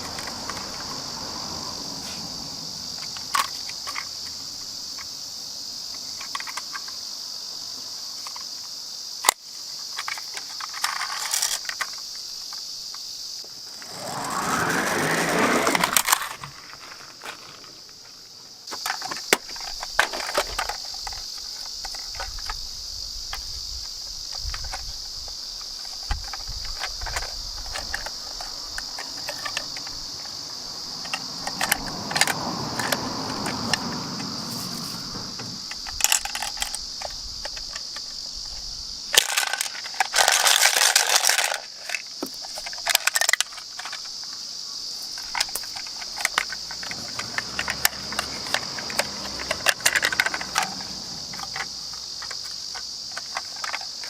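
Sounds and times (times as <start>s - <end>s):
toy car rolling down slope: 0.0s - 5.1s, 9.2s - 12.1s, 13.4s - 22.6s, 25.6s - 54.0s
toy cars clicking and knocking: 0.0s - 5.2s, 5.9s - 7.0s, 8.2s - 12.6s, 13.4s - 18.1s, 18.7s - 54.0s
high-pitched insect drone: 0.0s - 54.0s.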